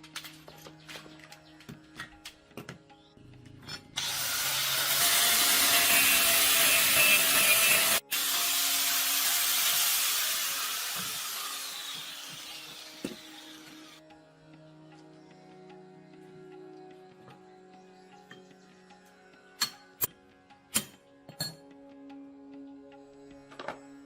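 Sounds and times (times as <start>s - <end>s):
power tool grinding metal: 4.0s - 14.0s.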